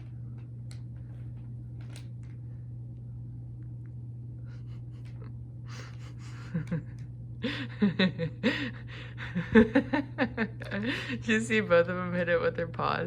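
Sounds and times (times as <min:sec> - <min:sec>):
steady low hum: 0:00.0 - 0:13.0
woman laughing and gasping: 0:04.5 - 0:11.2.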